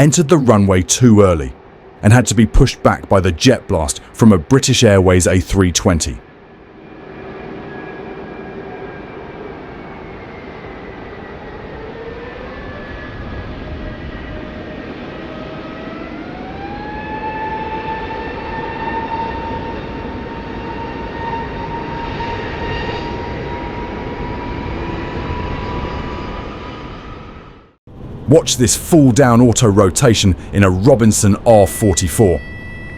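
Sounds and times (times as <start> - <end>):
jet engines spooling up: 6.6 - 28.8.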